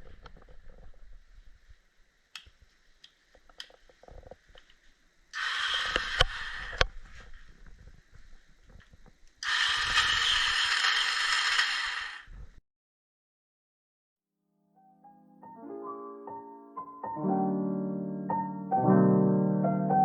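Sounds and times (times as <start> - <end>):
electric starter whirring: 5.3 - 7.0, 9.4 - 12.6.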